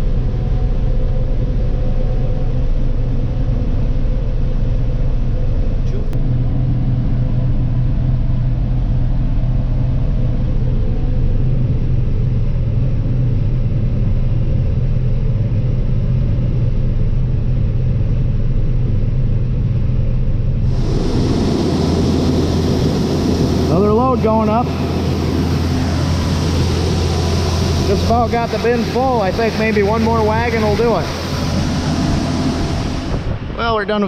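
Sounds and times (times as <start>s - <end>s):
tractor engine droning: 20.6s - 34.0s
hissing noise: 20.7s - 34.0s.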